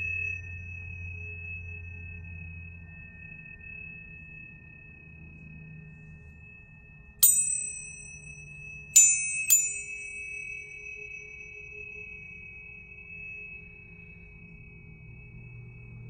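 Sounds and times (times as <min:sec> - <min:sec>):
tuning forks ringing: 0:00.0 - 0:03.4, 0:07.2 - 0:15.2
metallic ping of fork strike: 0:07.2 - 0:08.4, 0:09.0 - 0:10.7.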